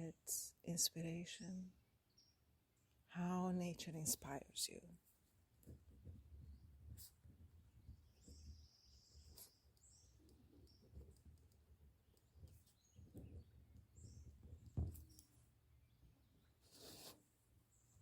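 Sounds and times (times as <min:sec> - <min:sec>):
faint bird chirps: 0:07.8 - 0:16.6.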